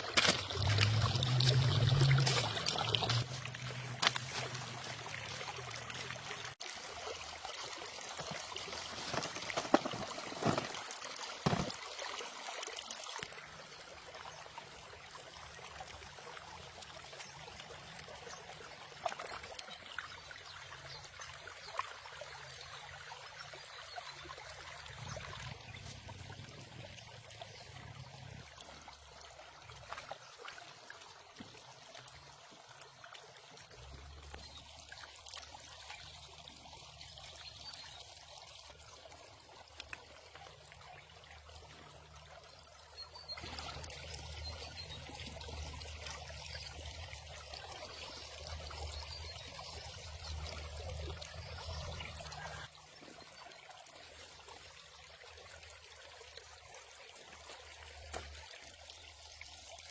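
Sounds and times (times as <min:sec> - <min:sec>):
water pouring and trickling: 0:00.0 - 0:59.9.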